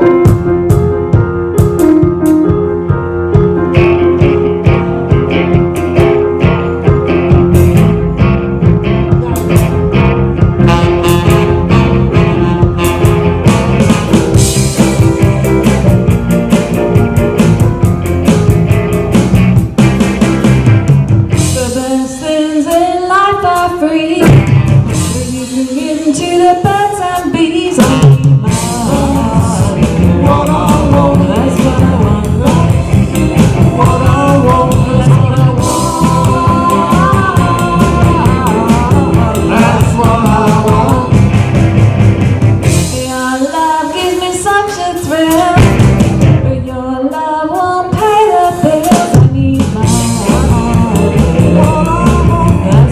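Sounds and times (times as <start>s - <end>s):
rock band playing: 0.0s - 46.7s, 47.6s - 52.9s
lead singer singing: 21.4s - 41.6s, 46.4s - 52.9s.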